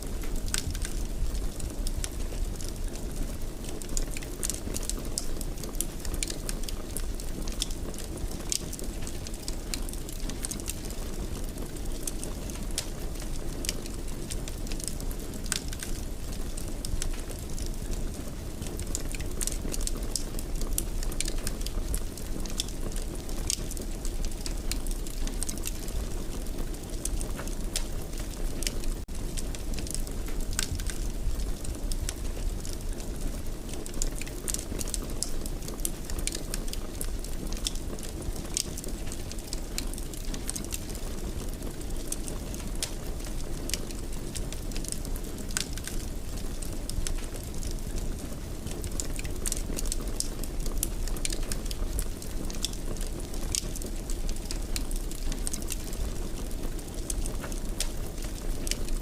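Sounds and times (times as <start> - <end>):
low rumble of burning: 0.0 - 59.0
wood fire crackling and popping: 0.0 - 59.0.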